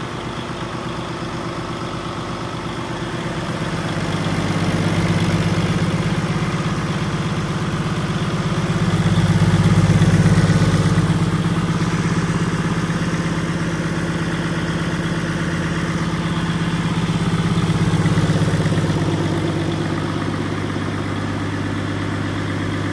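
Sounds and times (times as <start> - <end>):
diesel engine idling: 0.0 - 22.9.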